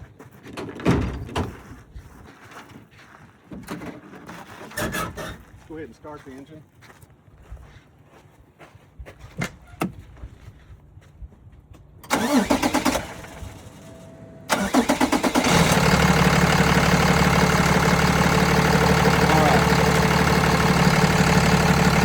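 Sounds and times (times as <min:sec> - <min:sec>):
starter motor cranking: 0:12.0 - 0:22.0
diesel truck engine idling: 0:12.1 - 0:22.0.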